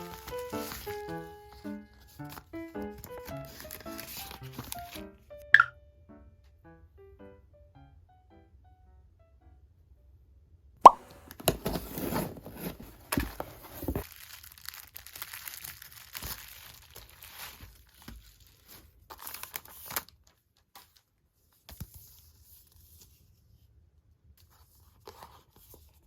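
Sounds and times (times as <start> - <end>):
parcel packaging torn and crinkled: 0.0 - 1.6, 3.0 - 5.0, 11.4 - 21.0.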